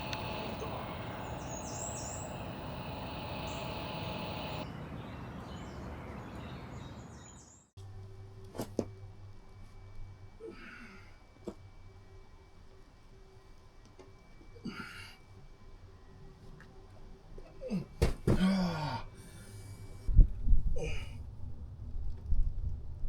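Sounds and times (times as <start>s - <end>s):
faint bird chirps: 0.0s - 7.7s
outdoor background noise: 0.0s - 23.0s.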